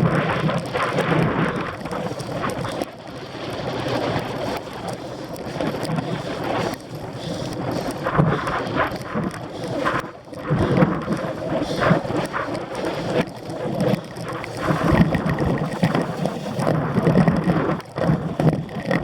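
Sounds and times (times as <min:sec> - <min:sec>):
wind buffeting microphone: 0:00.0 - 0:19.0
bike rattling and knocking: 0:06.6 - 0:19.0.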